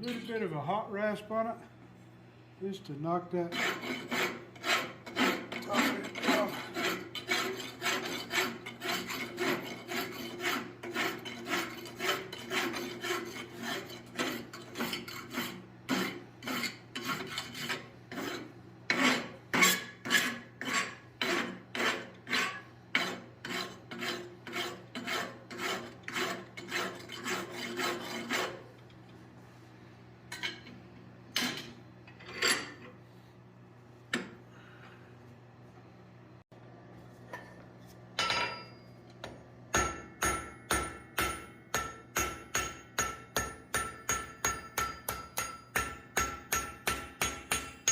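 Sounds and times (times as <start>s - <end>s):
rasp filing steel: 3.4s - 28.7s, 39.8s - 47.9s.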